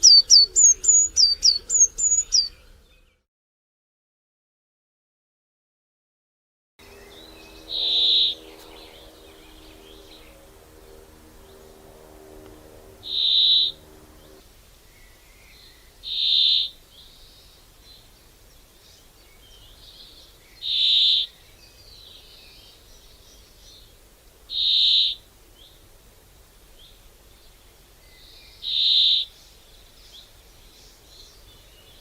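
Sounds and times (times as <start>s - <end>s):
faint bird chirps: 0.0s - 3.2s
steady low hum: 6.8s - 16.1s.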